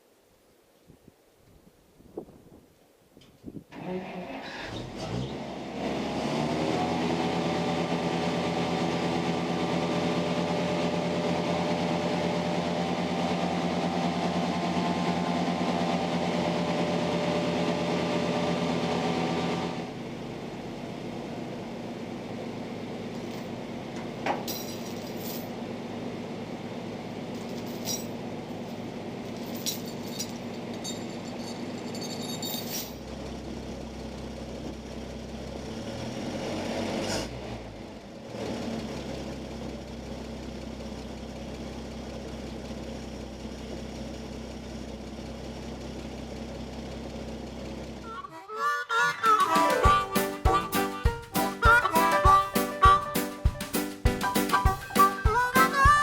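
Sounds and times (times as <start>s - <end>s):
truck engine running: 4.9s - 24.2s
light metallic clinks: 27.4s - 33.0s.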